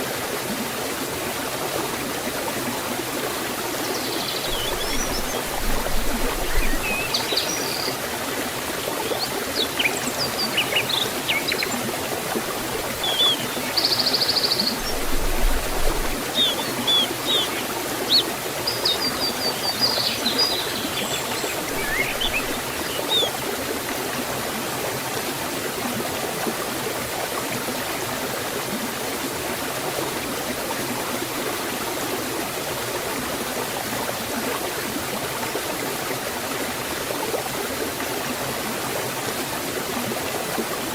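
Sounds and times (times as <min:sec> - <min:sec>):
waterfall and stream rushing: 0:00.0 - 0:40.9
small birds chirping: 0:03.8 - 0:08.1, 0:08.7 - 0:12.0, 0:12.7 - 0:23.4.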